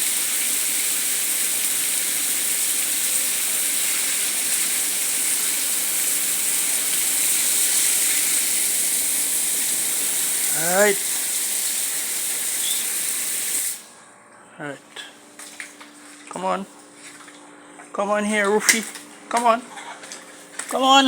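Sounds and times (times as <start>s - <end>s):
high-pitched hiss: 0.0s - 13.9s.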